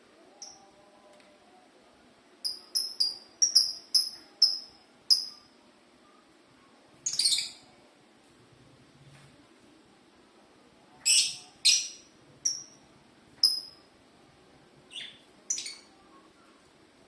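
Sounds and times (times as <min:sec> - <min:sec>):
lovebird high-pitched calls: 0:02.4 - 0:05.5, 0:07.0 - 0:07.7, 0:11.0 - 0:12.8, 0:13.4 - 0:13.8, 0:14.9 - 0:15.9.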